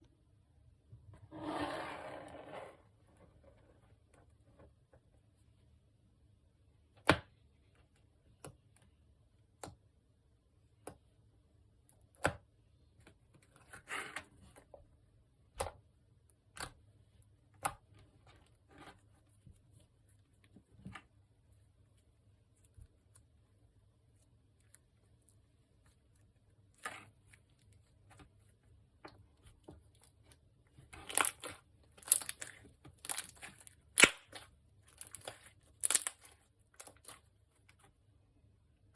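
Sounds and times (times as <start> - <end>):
slime clicking and popping: 31.1 - 37.1.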